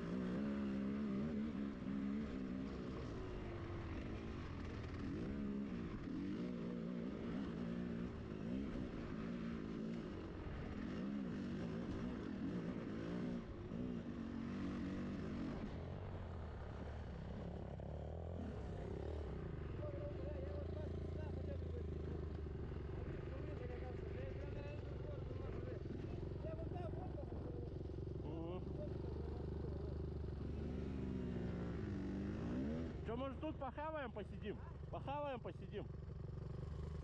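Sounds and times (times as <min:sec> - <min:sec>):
motorcycle engine revving: 0:00.0 - 0:35.0, 0:35.7 - 0:37.0.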